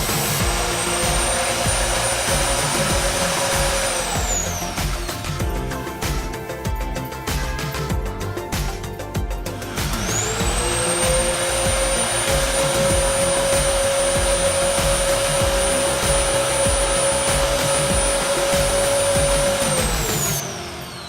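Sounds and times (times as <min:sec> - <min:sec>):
drill motor high whine: 0:00.0 - 0:07.8, 0:09.5 - 0:21.0.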